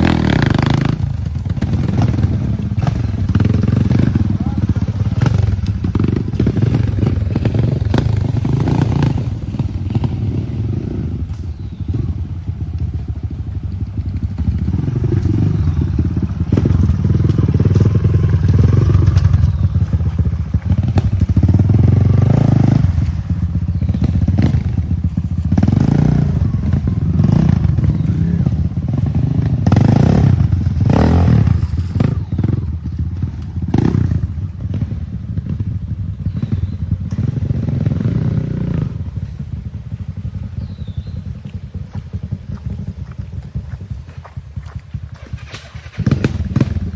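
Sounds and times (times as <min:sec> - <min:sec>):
motorcycle engines revving: 0:00.0 - 0:46.9.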